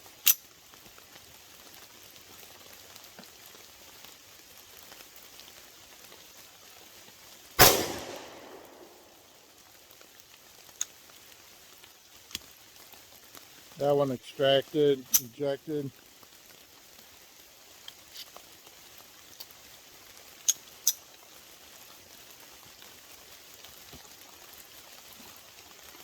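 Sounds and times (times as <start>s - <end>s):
rain hiss: 0.0s - 26.0s
pistol shot: 7.6s - 9.2s.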